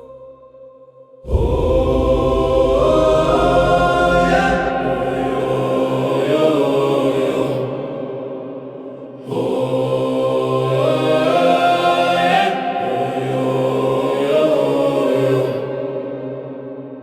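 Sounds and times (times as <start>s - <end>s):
low sustained drone: 1.2s - 7.6s
choir chanting long held notes: 1.2s - 16.9s.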